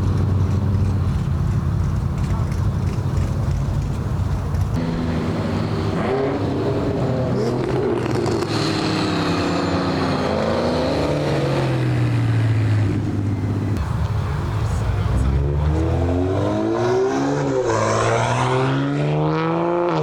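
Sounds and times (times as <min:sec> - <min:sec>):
car engine revving: 0:00.0 - 0:14.0, 0:14.6 - 0:20.0.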